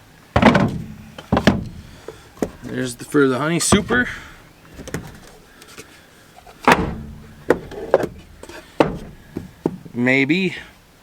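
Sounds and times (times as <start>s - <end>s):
wooden knocks: 0.4s - 5.5s, 6.4s - 10.0s.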